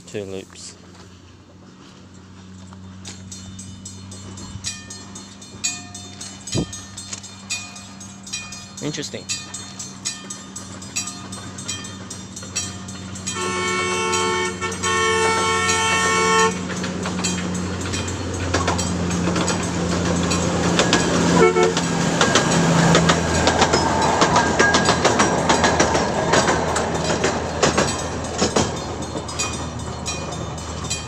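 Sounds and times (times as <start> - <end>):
train engine drone: 0.0 - 31.0
wheel clicks over rail joints: 0.8 - 31.0
two-note train horn: 13.3 - 16.7, 21.3 - 21.9.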